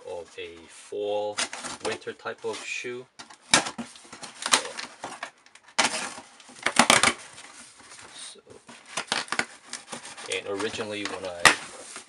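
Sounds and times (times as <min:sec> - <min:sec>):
package rustling and crinkling: 0:03.2 - 0:12.0.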